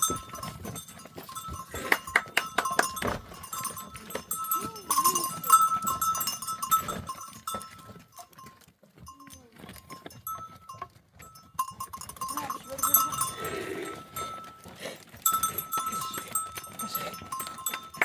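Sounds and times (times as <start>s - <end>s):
animal bells clinking: 0.0s - 18.0s
animal bleating: 12.3s - 14.4s.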